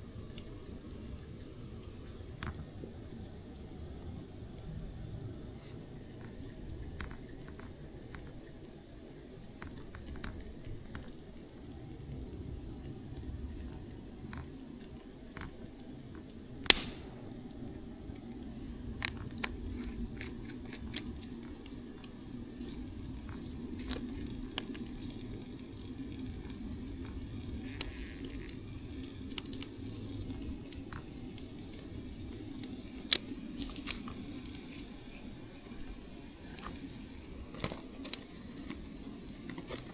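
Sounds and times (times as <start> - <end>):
wood fire crackling: 0.0 - 39.9
sharp loud crack of fire: 16.6 - 17.6.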